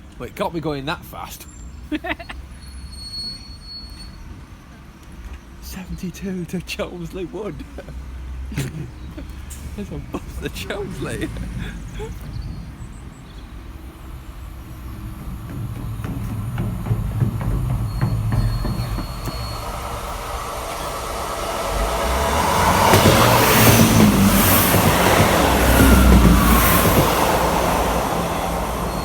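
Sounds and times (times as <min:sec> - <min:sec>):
train passing on rails: 0:00.0 - 0:29.0
wheels rattling over track: 0:06.6 - 0:29.0.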